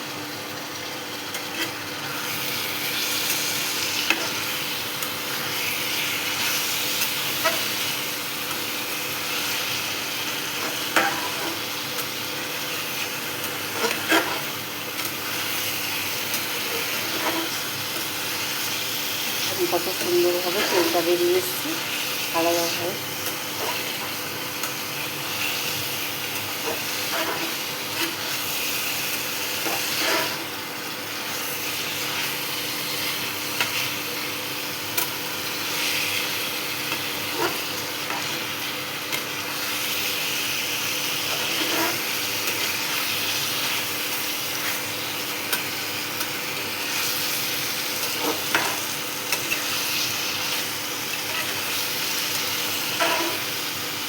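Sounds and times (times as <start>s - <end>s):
chicken sizzling in oil: 0.0s - 54.0s
spatula scraping and knocking pan: 10.6s - 11.7s, 16.6s - 18.1s, 26.4s - 28.4s, 41.3s - 42.8s, 52.9s - 53.5s.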